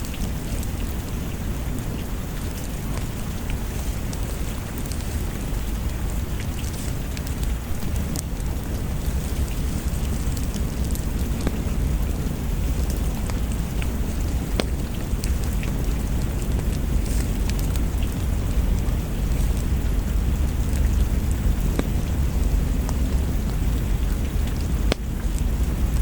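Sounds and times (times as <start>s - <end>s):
deep low rumble: 0.0s - 26.0s
steady rain: 0.0s - 26.0s
wood fire crackling: 0.0s - 26.0s.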